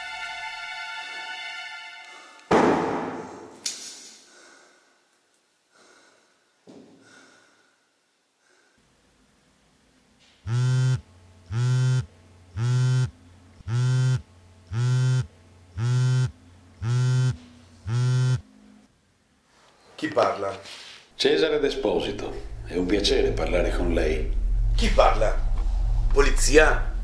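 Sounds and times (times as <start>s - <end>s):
phone vibrating on wooden table: 10.5s - 18.4s.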